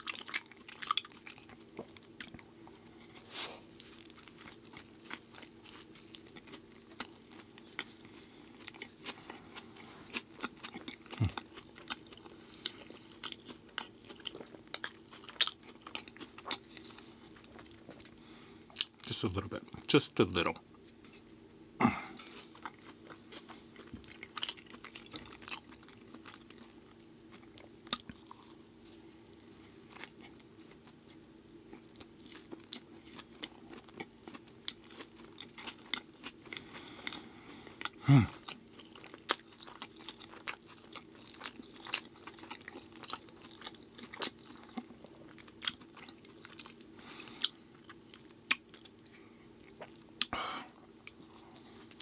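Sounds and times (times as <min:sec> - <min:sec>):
chewing with wet mouth clicks: 0:00.0 - 0:19.2, 0:22.2 - 0:37.2, 0:37.8 - 0:50.3
steady low hum: 0:00.0 - 0:52.0
person humming mm: 0:38.0 - 0:38.4.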